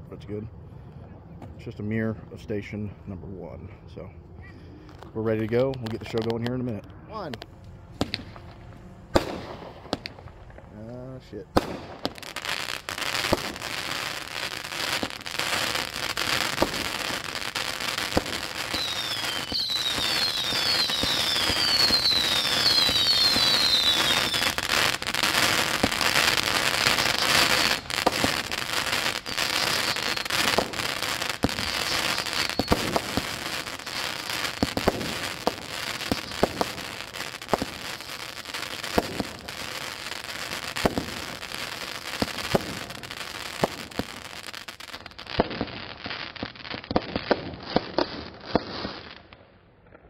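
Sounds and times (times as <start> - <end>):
firework crackle: 4.9 - 50.0
firework shots popping: 4.9 - 50.0
falling firework whistles: 11.6 - 46.4.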